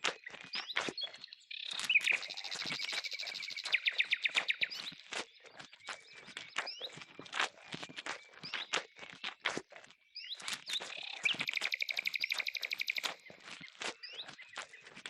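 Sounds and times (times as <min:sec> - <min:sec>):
bird chirping and trilling: 0:01.1 - 0:07.0, 0:10.2 - 0:14.8.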